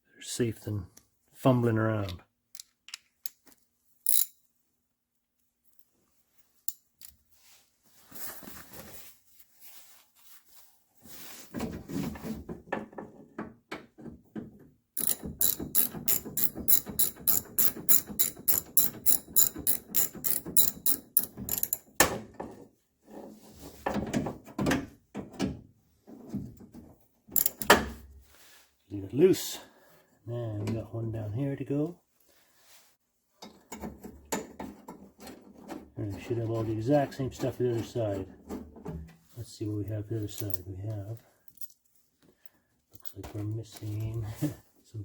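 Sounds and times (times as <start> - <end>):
metal parts handling and rubbing: 4.0 - 4.4, 15.0 - 21.8, 27.4 - 27.7
ratchet wrench clicking: 4.1 - 4.3, 15.0 - 21.8, 27.4 - 27.7.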